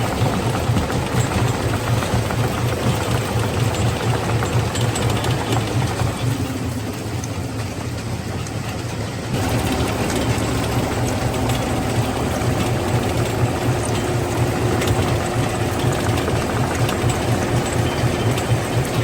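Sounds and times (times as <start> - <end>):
stone crushing machinery throbbing: 9.3 - 19.0.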